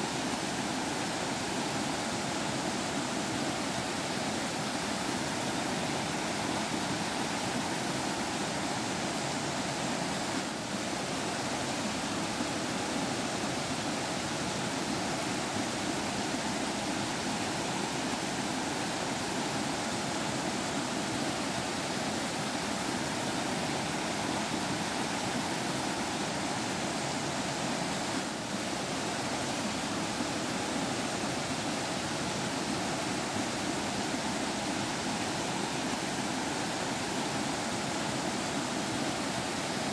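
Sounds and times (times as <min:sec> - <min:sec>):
stream flowing and babbling: 0:00.0 - 0:39.9.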